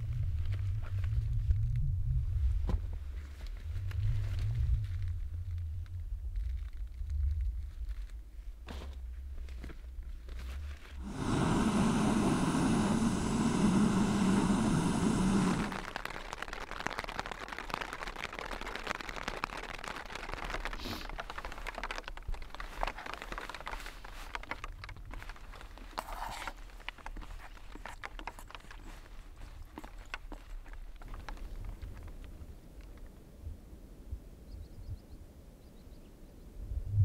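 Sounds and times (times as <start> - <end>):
rain pattering on a tent: 2.6 - 8.7, 9.4 - 33.2
loud rumbling rush: 11.0 - 16.4.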